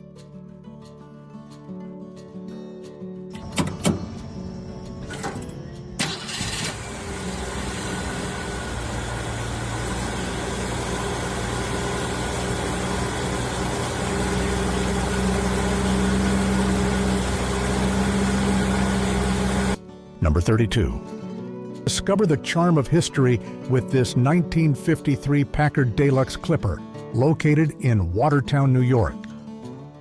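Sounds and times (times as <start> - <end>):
car engine starting and idling: 3.3 - 19.8.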